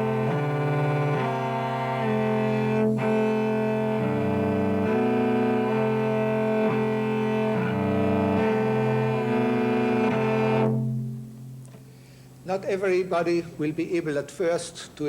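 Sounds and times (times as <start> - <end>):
cello playing double stops: 0.0 - 12.0.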